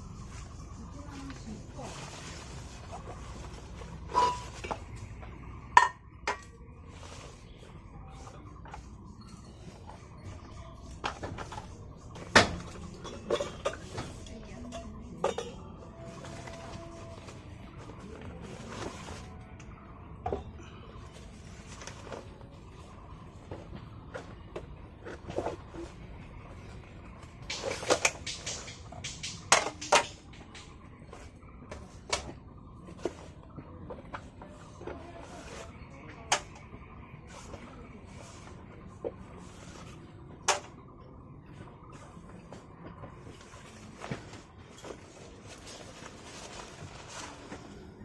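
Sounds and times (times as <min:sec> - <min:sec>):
knocks and clatters of handling: 0:00.3 - 0:40.8
metal cookware clanking: 0:04.0 - 0:04.9, 0:05.8 - 0:06.5, 0:12.4 - 0:15.8.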